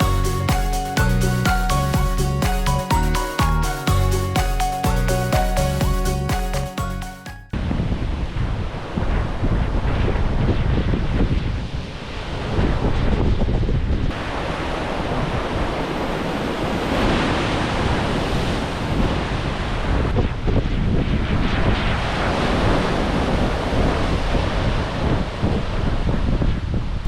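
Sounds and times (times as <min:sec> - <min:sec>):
wind buffeting microphone: 0:07.6 - 0:27.0
ocean surf breaking: 0:14.1 - 0:20.0.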